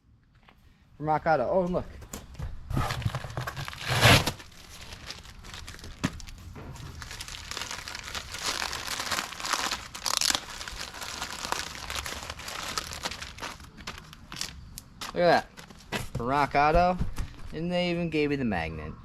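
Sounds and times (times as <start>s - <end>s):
packing material crinkling: 2.8s - 15.8s.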